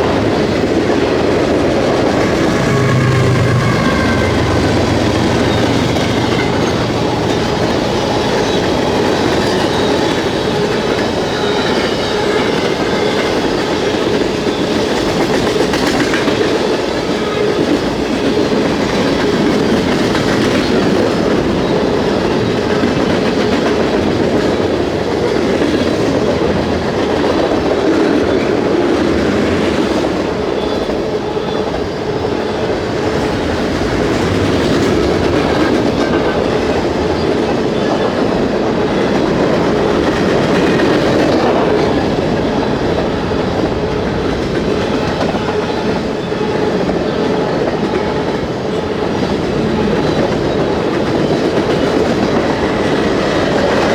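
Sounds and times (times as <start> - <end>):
freight train rumbling past: 0.0 - 53.9
faint wheel squeal: 1.9 - 13.6.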